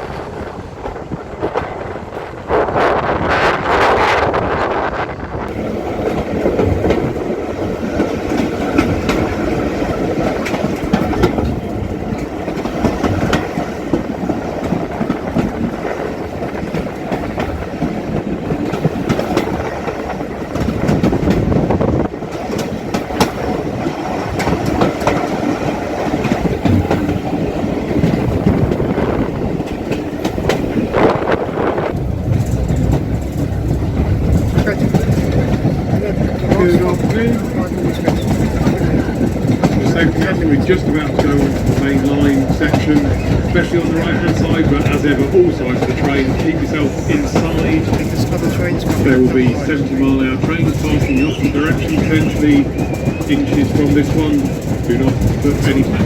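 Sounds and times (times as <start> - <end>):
train wheels clattering on rails: 0.0 - 4.8, 5.5 - 56.0.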